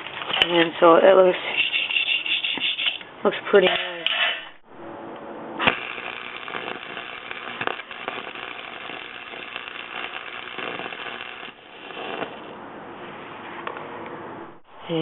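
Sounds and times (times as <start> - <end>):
sharp arc strike: 4.2 - 12.4
welder arc crackling: 5.6 - 12.6.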